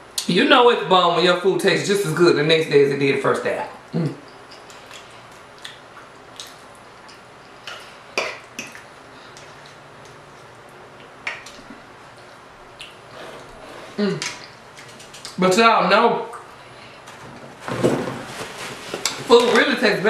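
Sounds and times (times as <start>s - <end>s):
wet chewing and mouth smacks: 4.6s - 13.0s.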